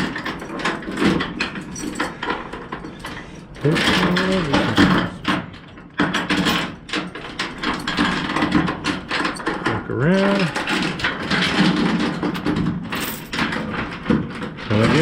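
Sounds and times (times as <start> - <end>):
steel chain clinking: 0.0 - 15.0.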